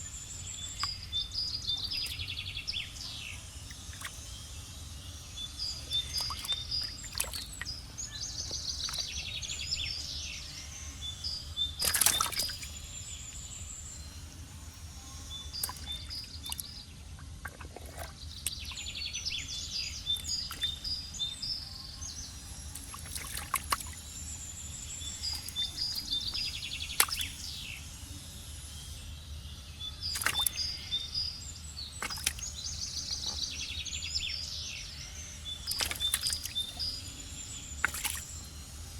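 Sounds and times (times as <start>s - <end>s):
bird chirping: 0.0s - 14.3s, 15.1s - 38.9s
water splashes: 3.7s - 4.2s, 5.7s - 7.8s, 8.4s - 9.7s, 11.8s - 12.8s, 15.5s - 19.3s, 20.0s - 21.0s, 22.7s - 27.6s, 30.1s - 30.8s, 32.0s - 33.7s, 35.5s - 37.0s, 37.7s - 38.4s.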